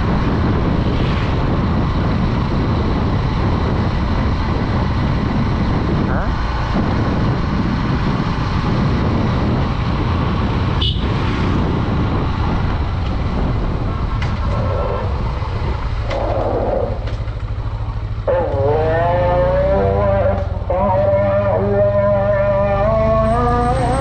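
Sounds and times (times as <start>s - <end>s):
wind rush on microphone: 0.0s - 18.8s
motorcycle engine running: 0.0s - 24.0s
long steady horn-like tone: 18.3s - 24.0s.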